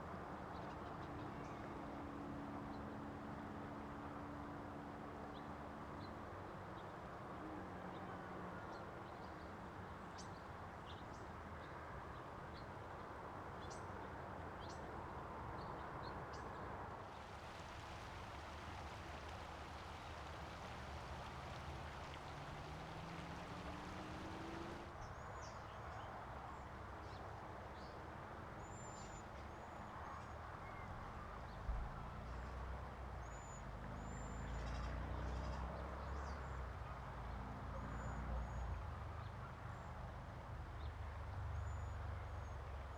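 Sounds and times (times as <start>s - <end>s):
loud hiss: 17.1s - 24.8s
low background rumble: 17.2s - 24.9s.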